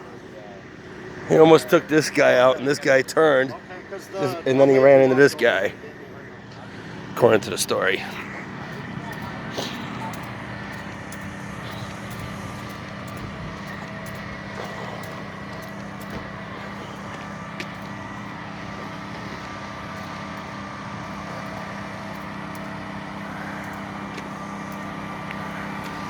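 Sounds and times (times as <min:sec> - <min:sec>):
large engine idling: 0:00.0 - 0:26.0
faint clicks: 0:08.7 - 0:26.0.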